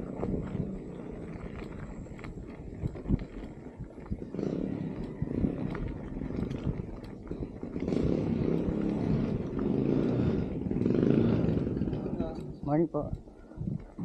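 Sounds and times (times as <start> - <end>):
motor engine running: 0.0 - 13.5.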